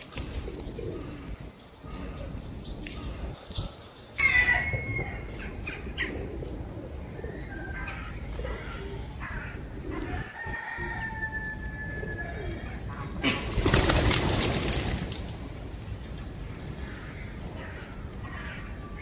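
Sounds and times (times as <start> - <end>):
birds calling: 0.0 - 11.2, 15.9 - 19.0
wings flapping: 13.2 - 15.5.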